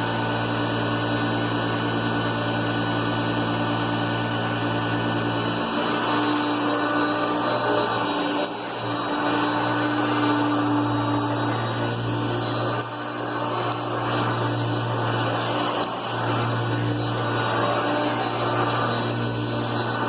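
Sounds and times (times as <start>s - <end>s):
upright vacuum cleaner running: 0.0s - 20.0s.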